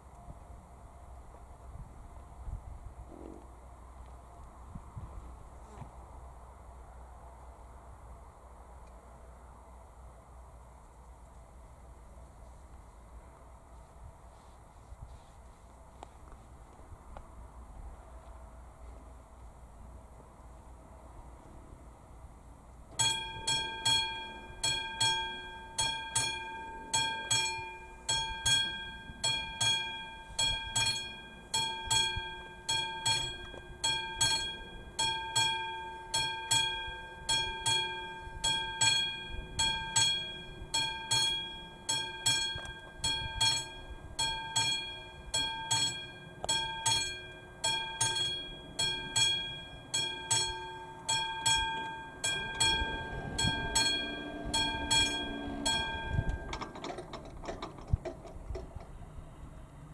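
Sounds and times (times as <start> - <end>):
level crossing bell ringing: 23.0 - 57.2.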